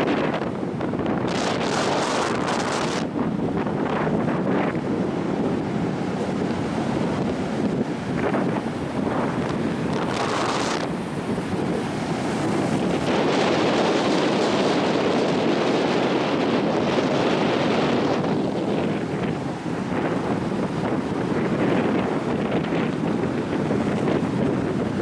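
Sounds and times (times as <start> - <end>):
surf washing: 0.0 - 25.0
wind buffeting microphone: 0.0 - 25.0.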